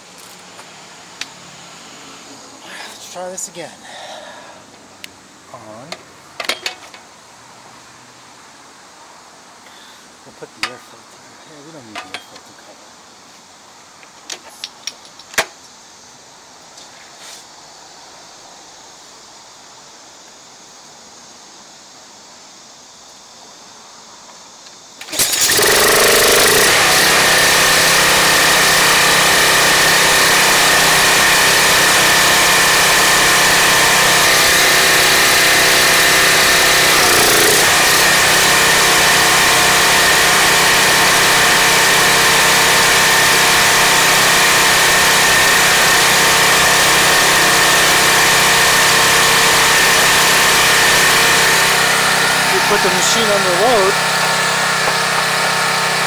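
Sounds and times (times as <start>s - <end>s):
pressure washer engine running: 25.1s - 56.0s.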